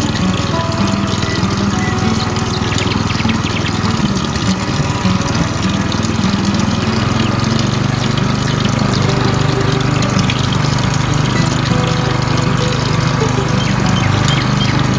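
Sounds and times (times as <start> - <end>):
electric water pump humming: 0.0 - 14.9
water splashing: 0.0 - 14.9.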